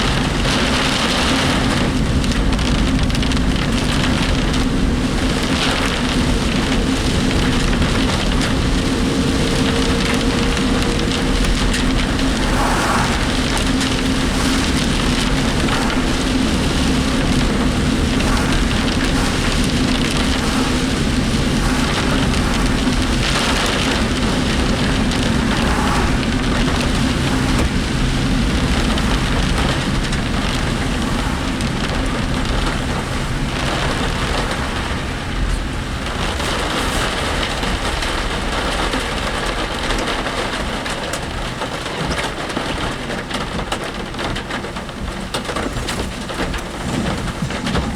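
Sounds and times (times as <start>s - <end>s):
heavy rain on a vehicle: 0.0s - 47.9s
tyre noise on wet road: 0.0s - 47.9s
steady low drone: 4.2s - 34.8s.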